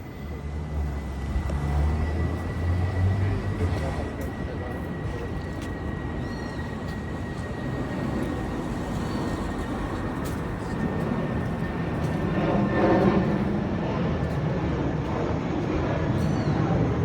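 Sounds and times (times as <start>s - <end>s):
traffic noise: 0.0s - 17.0s
vehicle passing: 0.4s - 5.7s.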